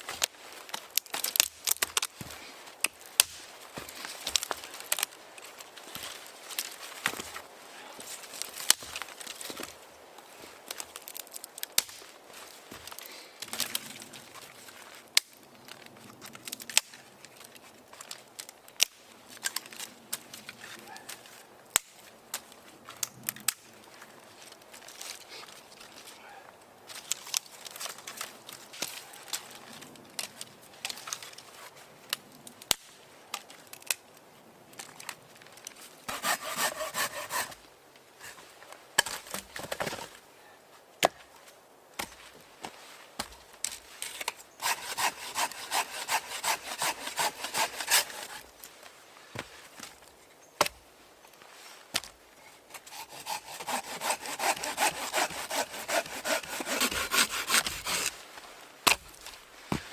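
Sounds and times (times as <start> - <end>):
hand saw cutting wood: 36.1 - 37.6, 44.6 - 48.5, 52.7 - 58.3.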